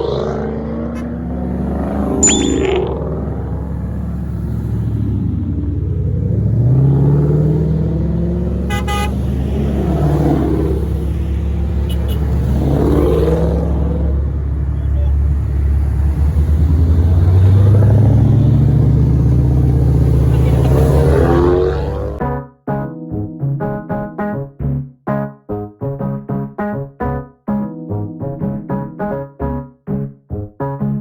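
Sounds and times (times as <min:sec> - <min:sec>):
car engine accelerating: 0:00.0 - 0:22.2
car horn toot: 0:08.6 - 0:09.3, 0:11.8 - 0:12.5.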